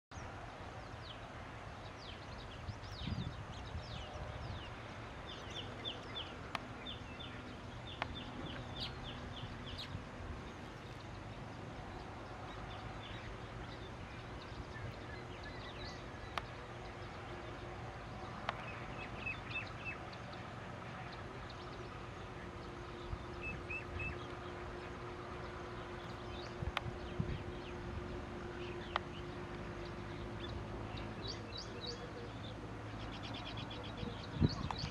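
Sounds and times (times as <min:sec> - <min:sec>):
birds chirping: 0:00.1 - 0:34.9
steady low hum: 0:00.1 - 0:34.9
sharp clicks: 0:18.4 - 0:18.8.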